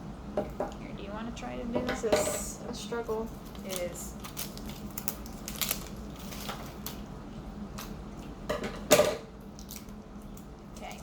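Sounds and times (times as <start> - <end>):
plastic package crinkling: 3.2 - 7.1.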